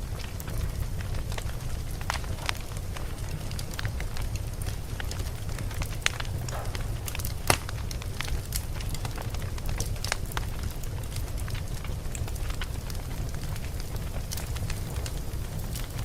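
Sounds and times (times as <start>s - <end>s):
campfire crackling and popping: 0.0s - 16.0s
low rumble: 3.0s - 9.2s.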